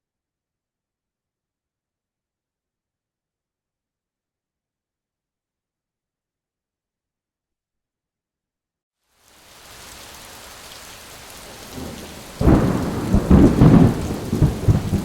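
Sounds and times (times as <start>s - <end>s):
steady rain: 9.1s - 15.0s
rolling thunder: 11.5s - 15.0s.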